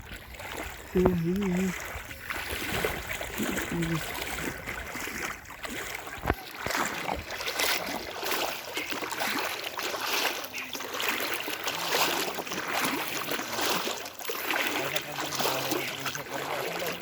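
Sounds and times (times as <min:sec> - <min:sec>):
floodwater splashing and trickling: 0:00.0 - 0:17.0.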